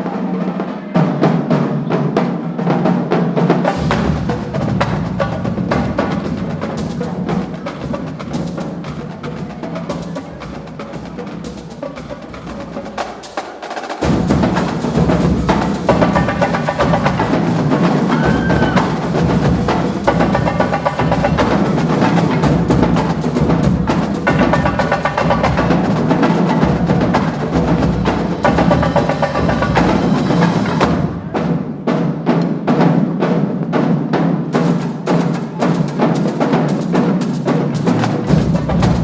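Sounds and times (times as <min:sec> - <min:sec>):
snare and tenor drums: 0:00.0 - 0:39.0
bass drums: 0:03.7 - 0:12.8, 0:14.0 - 0:31.7.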